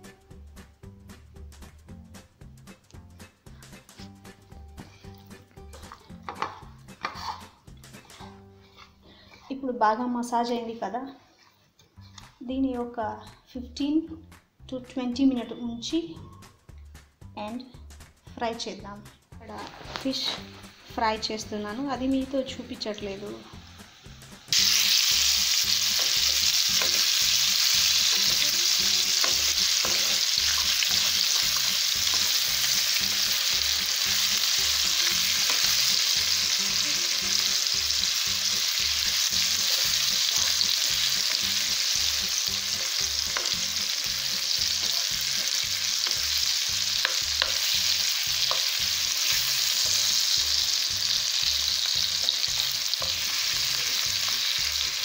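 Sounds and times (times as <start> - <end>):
metal spatula scraping and tapping: 5.8 - 9.6, 25.9 - 28.5, 29.1 - 32.8, 35.0 - 35.9, 42.8 - 43.6, 47.0 - 47.8, 48.4 - 48.8
fish sizzling in oil: 23.1 - 55.0.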